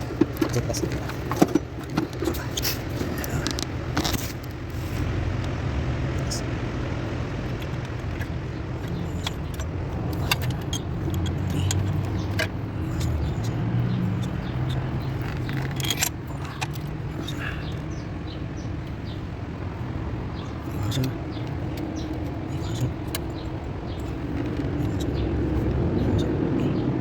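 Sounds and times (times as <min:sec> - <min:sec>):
diesel engine idling: 0:00.0 - 0:27.0
metallic jingles: 0:07.6 - 0:27.0.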